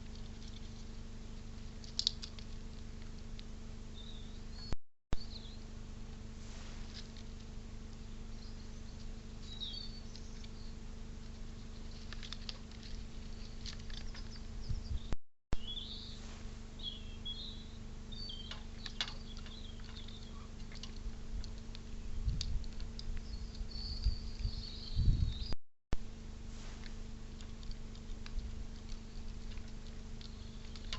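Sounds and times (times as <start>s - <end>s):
steady low hum: 0.0s - 30.9s
birds chirping faintly: 3.8s - 5.7s, 7.8s - 25.6s, 26.8s - 30.9s.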